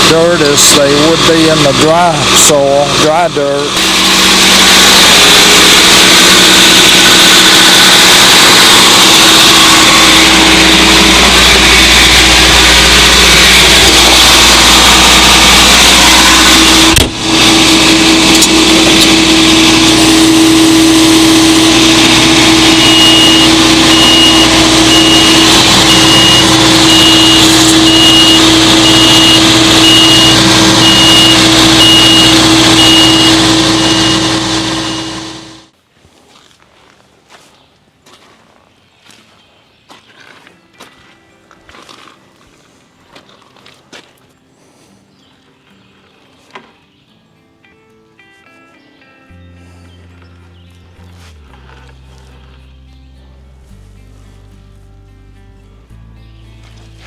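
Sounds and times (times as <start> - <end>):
machinery engine running: 0.0 - 35.7, 49.8 - 55.0.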